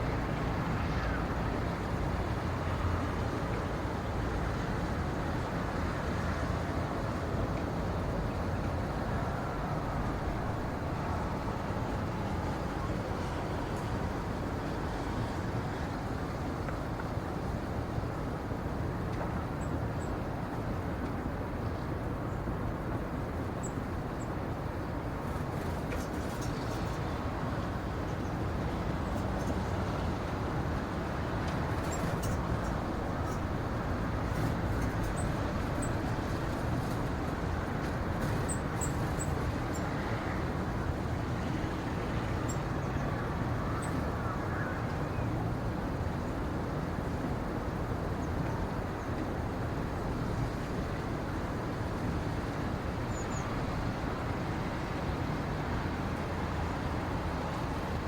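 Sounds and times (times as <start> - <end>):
low outdoor rumble: 24.5 - 46.2.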